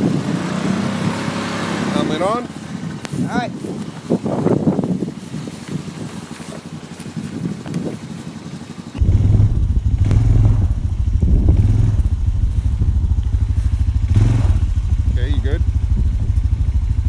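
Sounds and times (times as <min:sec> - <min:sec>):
quad bike engine running: 0:00.0 - 0:17.0
loud low rumble: 0:09.0 - 0:17.0.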